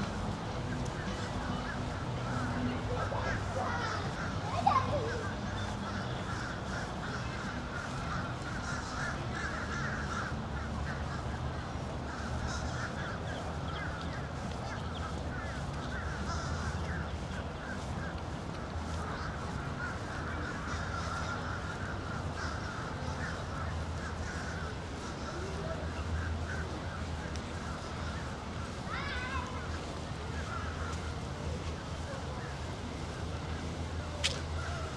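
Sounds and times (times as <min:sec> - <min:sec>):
flock of birds chattering: 0:00.0 - 0:34.9.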